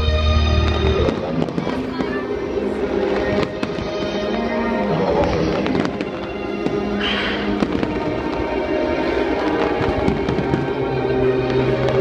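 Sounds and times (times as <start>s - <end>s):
fireworks popping and crackling: 0.6s - 12.0s
firework hissing burst: 5.2s - 10.8s.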